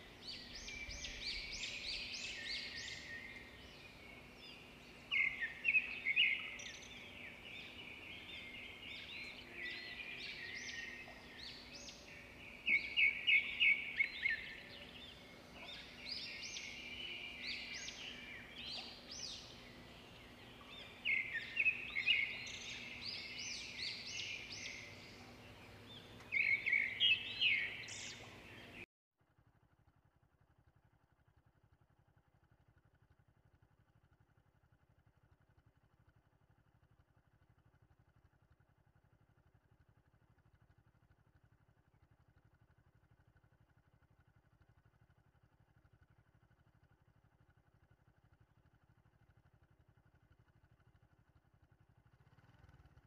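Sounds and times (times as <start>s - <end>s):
wild birds chirping: 0.0s - 28.8s.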